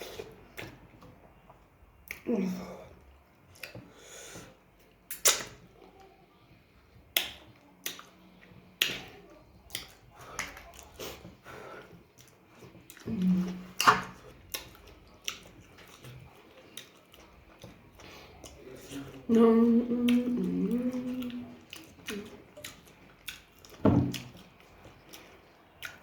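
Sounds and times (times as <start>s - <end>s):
chewing with crunches: 0.0s - 26.0s
person humming: 19.3s - 21.5s.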